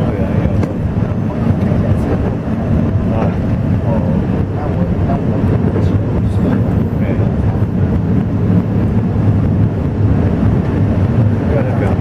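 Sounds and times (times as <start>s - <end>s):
train rumbling from inside carriage: 0.0s - 12.0s.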